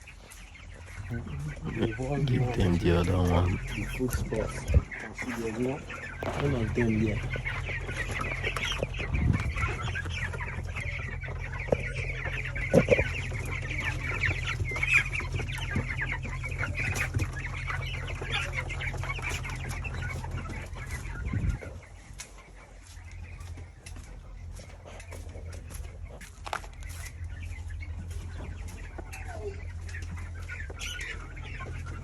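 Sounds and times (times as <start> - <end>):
chicks peeping: 0.0 - 32.0
steady low hum: 0.0 - 32.0.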